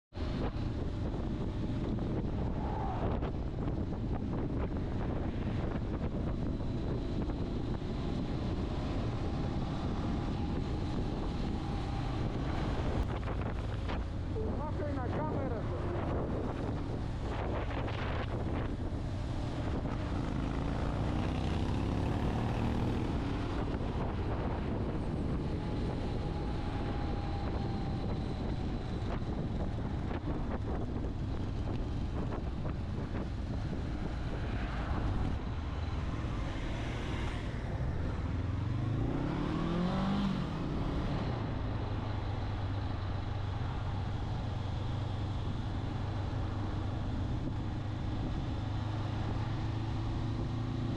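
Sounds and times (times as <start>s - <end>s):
road noise: 0.1s - 50.9s.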